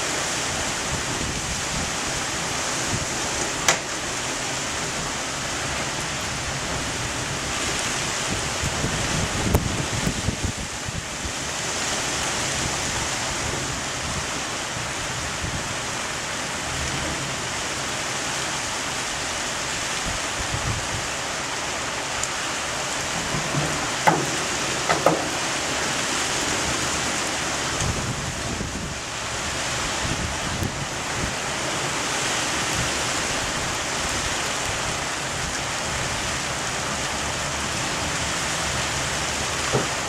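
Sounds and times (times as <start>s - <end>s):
heavy rain: 0.0s - 40.0s
wind: 0.0s - 40.0s
sharp knocks: 23.2s - 25.4s, 39.7s - 40.0s.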